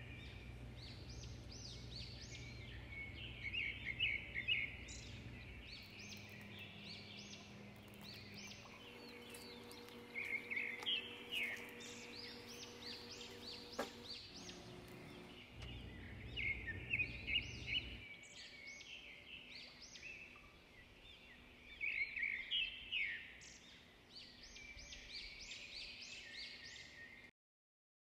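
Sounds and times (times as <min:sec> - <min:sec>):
low hum: 0:00.0 - 0:18.2
small birds chirping: 0:00.0 - 0:27.3.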